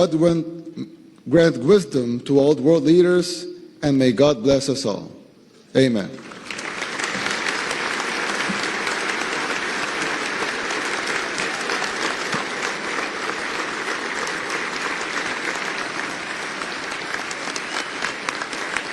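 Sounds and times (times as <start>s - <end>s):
audience applauding: 6.2s - 18.9s.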